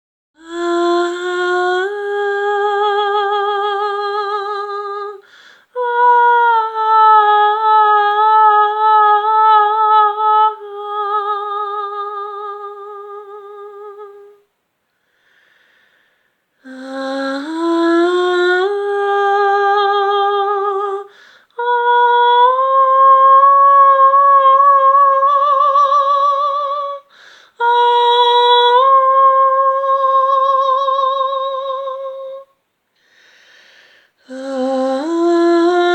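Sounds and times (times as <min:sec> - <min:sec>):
woman humming: 0:00.4 - 0:05.2, 0:34.2 - 0:35.9
short breaths: 0:05.2 - 0:05.7, 0:14.9 - 0:16.5, 0:21.1 - 0:21.5, 0:27.1 - 0:27.6, 0:33.0 - 0:34.2.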